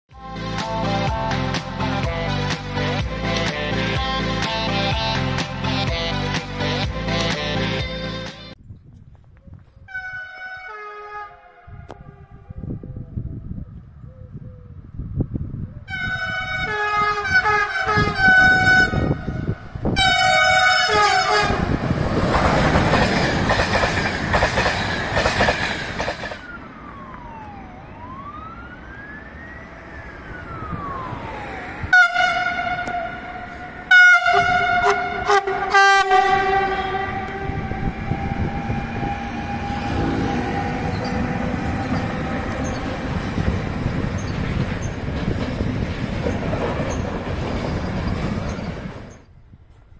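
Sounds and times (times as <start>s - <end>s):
passing train running: 0.2s - 8.6s, 9.9s - 49.9s
multi-tone train horn blasts: 9.9s - 12.9s, 15.9s - 21.8s, 31.9s - 42.2s.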